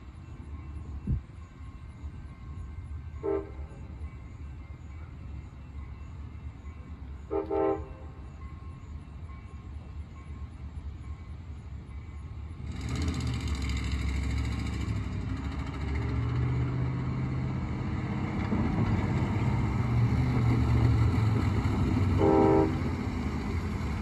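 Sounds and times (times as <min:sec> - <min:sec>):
horn toot: 0:22.2 - 0:22.8.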